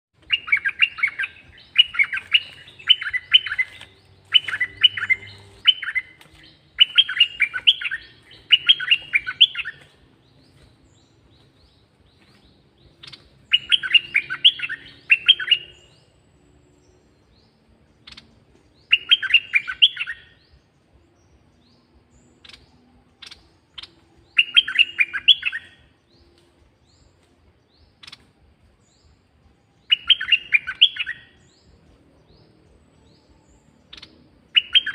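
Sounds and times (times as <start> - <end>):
bird chirping song: 0.2 - 34.9.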